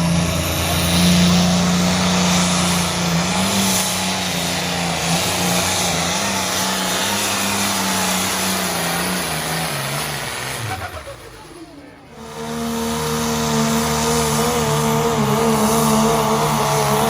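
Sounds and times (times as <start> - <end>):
engine running hard under load: 0.0 - 17.0.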